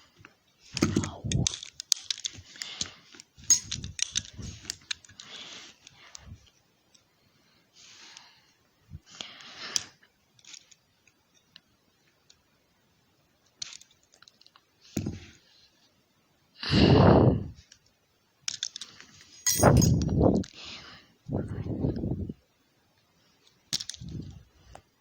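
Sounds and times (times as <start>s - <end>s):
plastic toy parts clicking: 0.8s - 2.4s, 3.5s - 5.2s.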